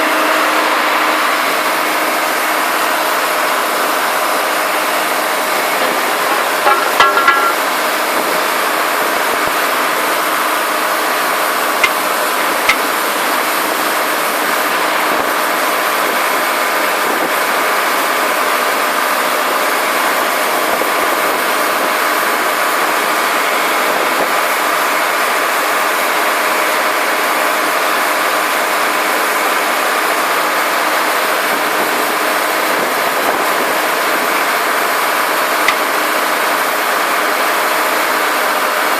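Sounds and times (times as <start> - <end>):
drill rig engine running: 0.0 - 38.9.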